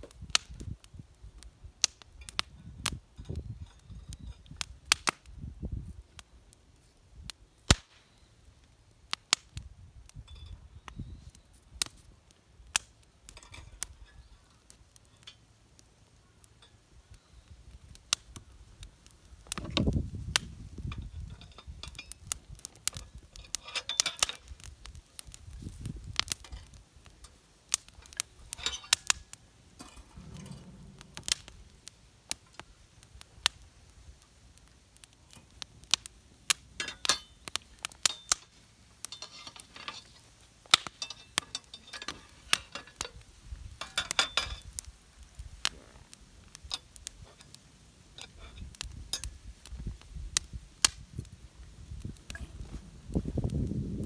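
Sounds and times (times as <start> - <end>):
metal parts clicking and clinking: 20.9 - 24.4, 39.1 - 43.2, 43.8 - 44.7
dull handling rumble: 29.7 - 32.3.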